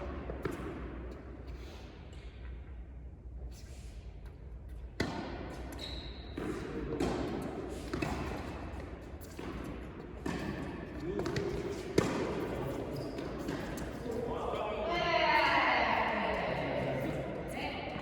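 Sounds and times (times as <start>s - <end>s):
tennis balls bouncing on court: 0.1s - 1.3s, 4.7s - 14.3s
tennis balls struck by rackets: 4.9s - 14.1s.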